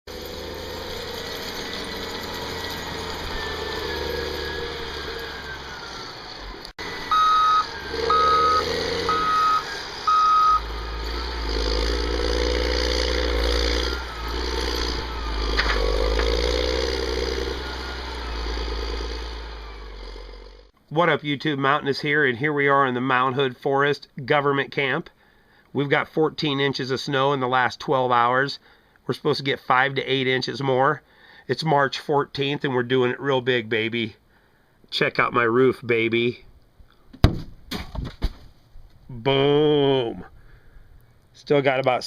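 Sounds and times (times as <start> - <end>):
truck engine running: 0.1 - 20.7
backup alarm beeping: 6.8 - 10.8.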